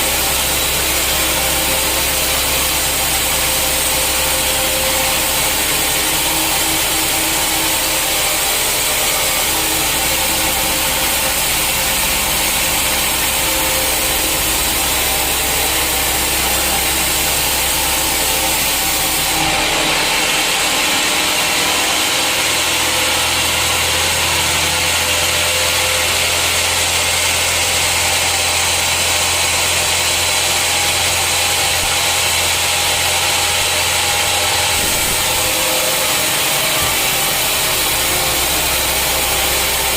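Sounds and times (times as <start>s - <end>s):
sawmill saw cutting wood: 0.0s - 39.9s.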